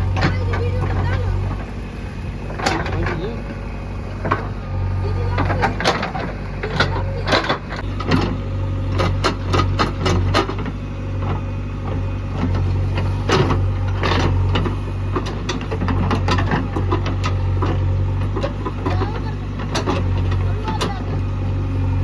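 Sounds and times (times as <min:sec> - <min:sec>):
heavy diesel engine running: 0:00.0 - 0:22.0
metallic clanks and knocks: 0:02.5 - 0:03.5, 0:05.3 - 0:21.1.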